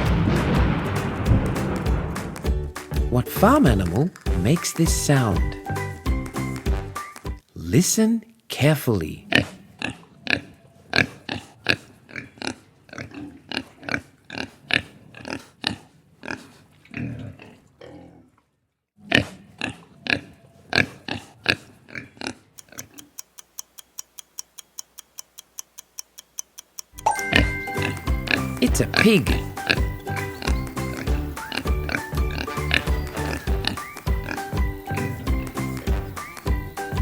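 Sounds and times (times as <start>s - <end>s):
pig oinking and grunting: 9.2s - 18.4s, 19.0s - 23.0s, 27.8s - 34.5s
clock ticking quickly: 22.6s - 35.9s.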